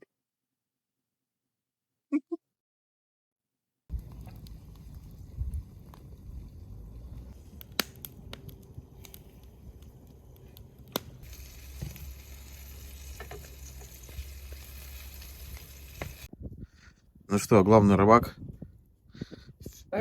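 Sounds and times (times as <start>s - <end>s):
fish sizzling in a pan: 11.0s - 16.3s.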